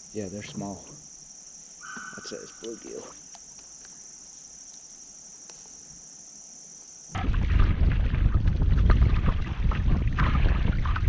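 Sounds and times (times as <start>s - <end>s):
insect chorus: 0.0s - 11.0s
wind rumbling on microphone: 7.2s - 11.0s
kayak paddle splashes: 7.4s - 11.0s.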